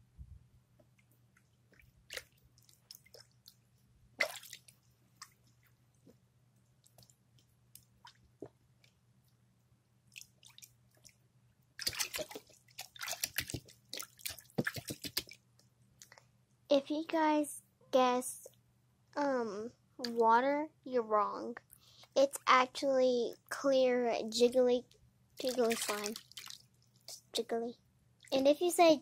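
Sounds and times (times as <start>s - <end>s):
faint low hum: 0.0s - 29.0s
soft wet drips: 0.8s - 9.4s, 10.0s - 16.3s, 24.9s - 27.3s, 28.2s - 28.4s
wet squishing and squelching: 1.4s - 5.7s, 10.1s - 11.2s, 11.8s - 15.4s, 25.4s - 27.2s.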